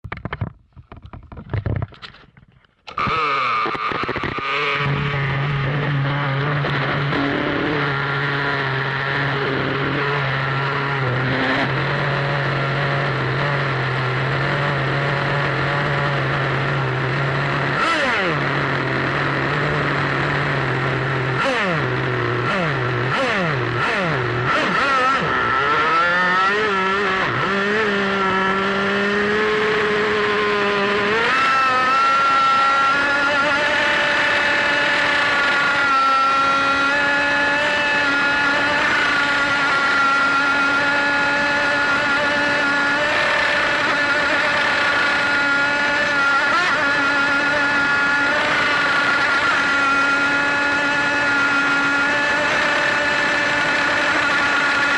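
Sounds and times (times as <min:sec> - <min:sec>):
model boat motor revving: 0:02.9 - 0:54.9.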